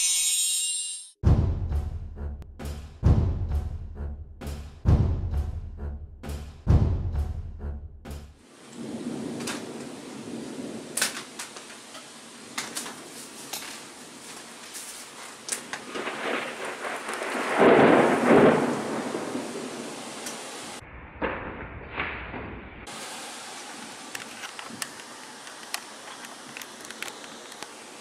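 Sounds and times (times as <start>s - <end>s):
steady rain with crackles: 8.4s - 20.8s, 22.9s - 28.0s
thunder rolling: 8.8s - 11.4s, 15.8s - 22.9s.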